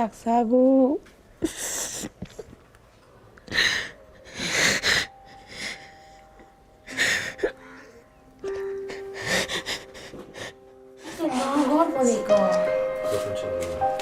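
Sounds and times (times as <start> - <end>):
woman sobbing and sniffing: 1.4 - 2.5, 3.5 - 12.0.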